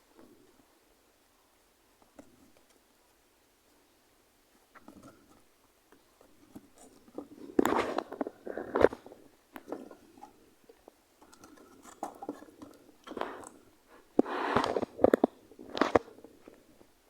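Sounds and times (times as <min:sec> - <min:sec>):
rustling scrapes: 0:06.2 - 0:17.0.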